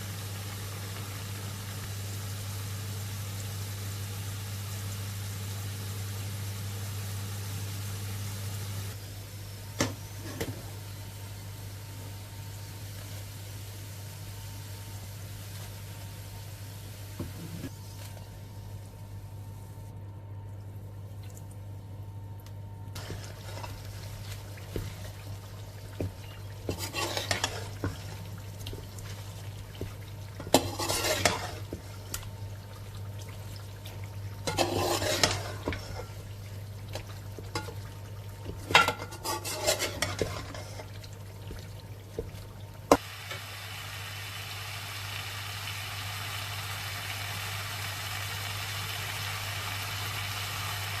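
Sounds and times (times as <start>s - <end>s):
utensil scraping a pan: 26.0s - 28.1s, 29.8s - 31.9s, 34.4s - 36.2s, 38.5s - 41.0s.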